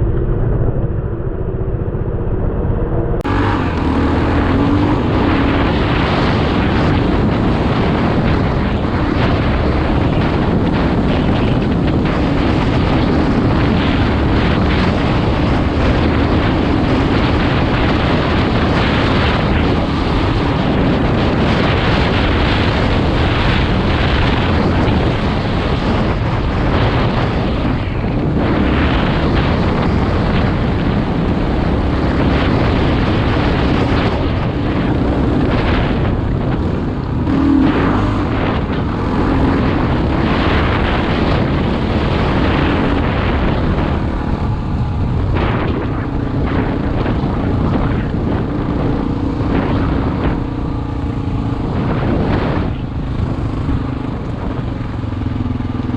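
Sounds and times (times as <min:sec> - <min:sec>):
motorcycle engine revving: 0:00.0 - 0:55.9
wind noise on microphone: 0:00.0 - 0:55.9.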